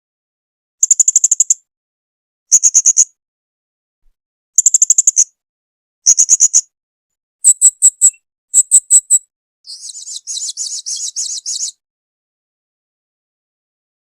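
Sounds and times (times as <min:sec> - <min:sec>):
parrot shrill chirps: 0:07.4 - 0:11.7.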